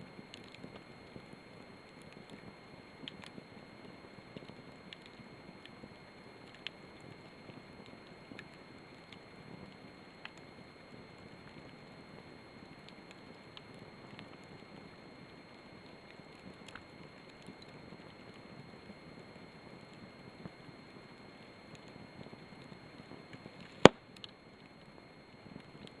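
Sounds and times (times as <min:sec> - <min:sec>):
burning wood crackling pops: 0:23.2 - 0:26.0.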